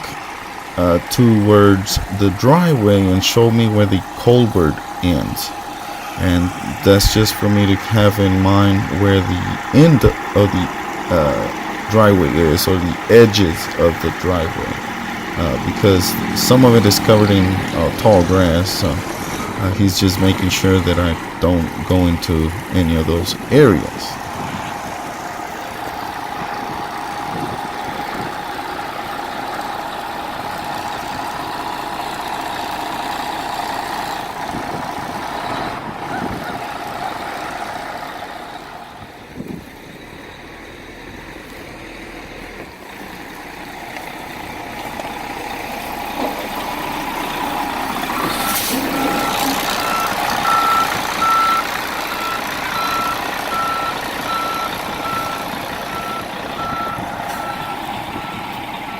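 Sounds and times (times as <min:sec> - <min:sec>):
coach diesel engine with whine: 0:00.0 - 0:58.9
reversing beeper: 0:06.2 - 0:22.1, 0:47.4 - 0:58.9.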